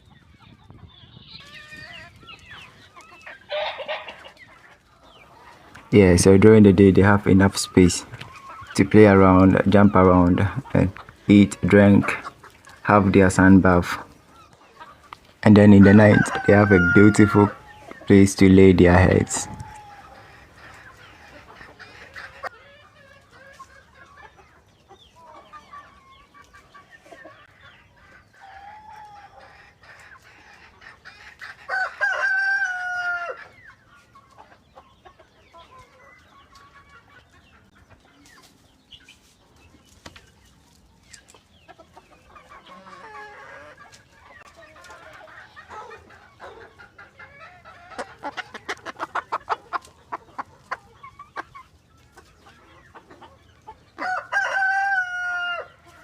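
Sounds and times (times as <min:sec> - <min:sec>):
hens clucking: 0:00.0 - 0:56.0
rooster crowing: 0:15.8 - 0:17.6, 0:31.7 - 0:33.4, 0:54.0 - 0:55.8.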